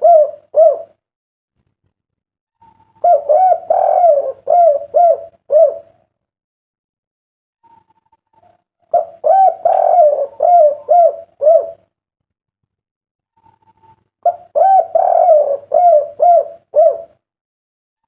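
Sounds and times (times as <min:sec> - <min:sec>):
dove cooing: 0:00.0 - 0:01.0, 0:02.6 - 0:06.0, 0:08.3 - 0:11.9, 0:13.4 - 0:17.2.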